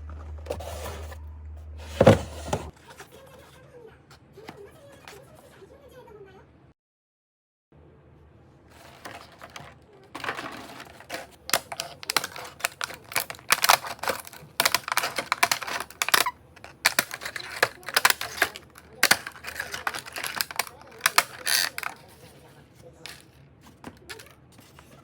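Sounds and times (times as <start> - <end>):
egg trays clattering: 1.8 - 2.7, 8.8 - 22.3.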